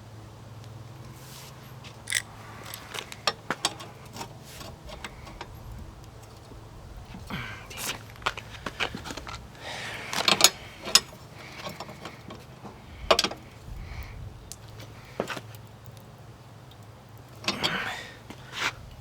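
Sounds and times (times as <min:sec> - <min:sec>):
steady low hum: 0:00.0 - 0:19.0
metal parts clicking and clattering: 0:02.0 - 0:05.5.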